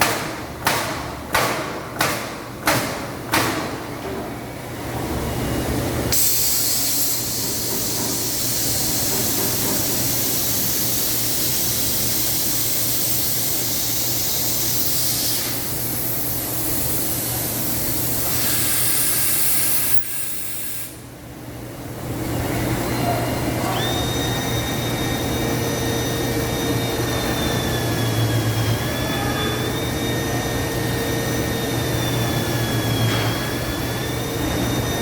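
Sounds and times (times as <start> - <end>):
compressed air hissing: 6.1 - 21.1
machine hum: 21.0 - 35.0.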